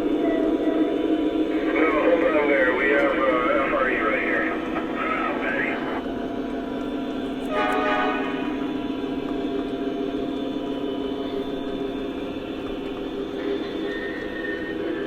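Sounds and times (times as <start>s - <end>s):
model train diesel engine sound: 0.0s - 15.0s.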